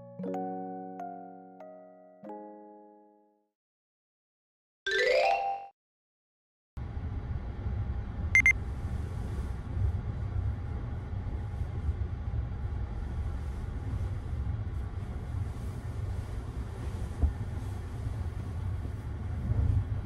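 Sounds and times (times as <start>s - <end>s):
faint hum: 6.8s - 20.0s
train carriage rumble: 6.8s - 20.0s
short high beeps: 8.4s - 8.6s.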